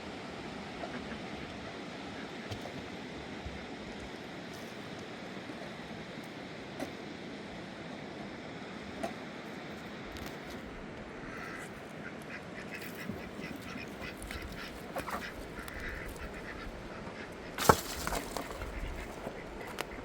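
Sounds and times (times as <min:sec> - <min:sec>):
quacking bird calls: 0:00.7 - 0:02.6, 0:11.1 - 0:20.0.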